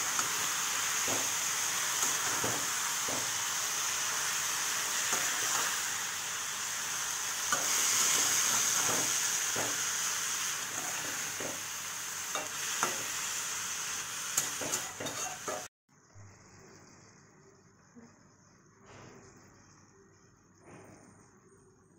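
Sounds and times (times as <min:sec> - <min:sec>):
food sizzling in oil: 0:00.0 - 0:15.7
spatula scraping pan: 0:14.4 - 0:15.7.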